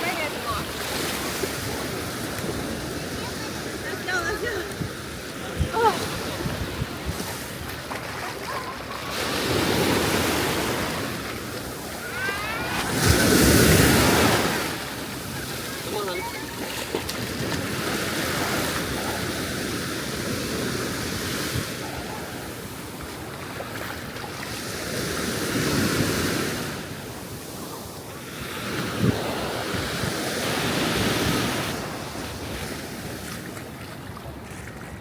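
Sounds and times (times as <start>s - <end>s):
ocean surf washing onto beach: 0.0s - 35.0s
wind on microphone: 1.1s - 15.4s, 28.7s - 35.0s.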